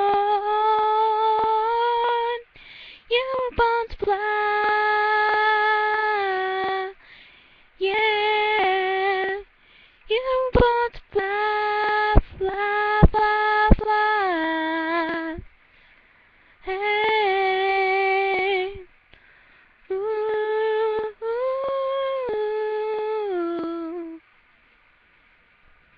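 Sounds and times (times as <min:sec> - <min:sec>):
woman singing wordless notes: 0:00.0 - 0:07.0, 0:07.8 - 0:09.5, 0:10.1 - 0:15.5, 0:16.6 - 0:18.9, 0:19.9 - 0:24.3.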